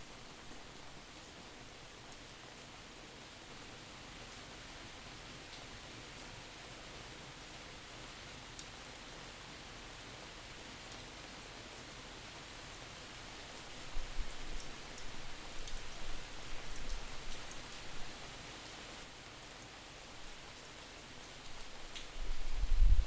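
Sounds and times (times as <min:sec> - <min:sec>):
steady rain hiss: 0:00.0 - 0:23.0
faint drip ticks: 0:08.6 - 0:08.8
wind buffeting microphone: 0:22.2 - 0:23.0.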